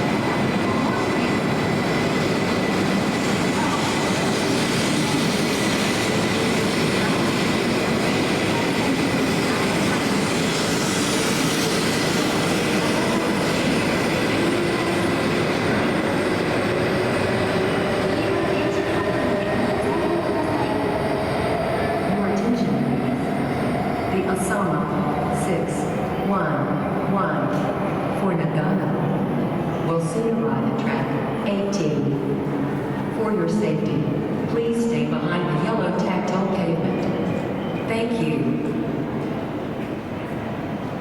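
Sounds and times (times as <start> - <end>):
train rolling noise: 0.0 - 41.0.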